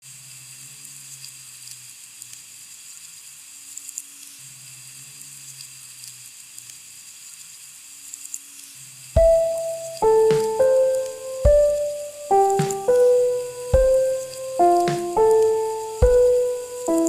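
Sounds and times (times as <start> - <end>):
steady rain falling: 9.3 - 17.0.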